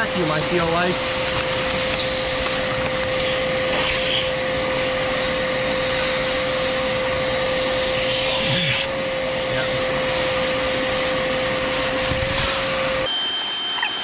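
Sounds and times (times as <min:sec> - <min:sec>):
shop vacuum running: 0:00.0 - 0:14.0.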